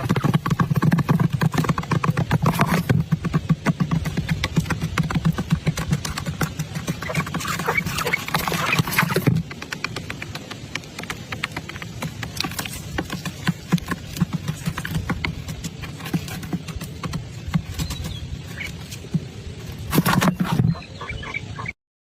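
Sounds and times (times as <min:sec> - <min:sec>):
birds tapping and scrabbling: 0:00.0 - 0:21.8
wings rustling: 0:04.2 - 0:20.9
faint bird chirps: 0:20.0 - 0:21.8.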